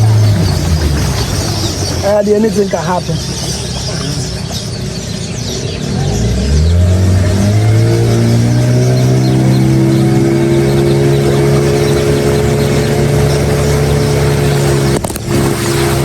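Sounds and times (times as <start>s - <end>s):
engine revving: 0.0s - 16.0s.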